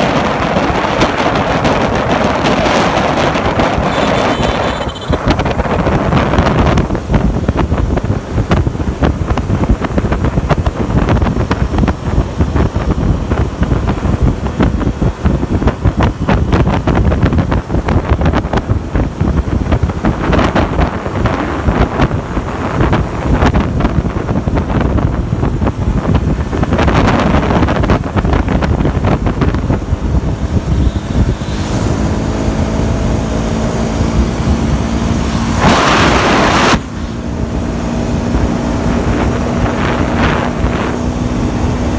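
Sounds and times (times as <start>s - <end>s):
motorbike engine running: 0.0s - 41.9s
wind buffeting microphone: 0.0s - 41.9s.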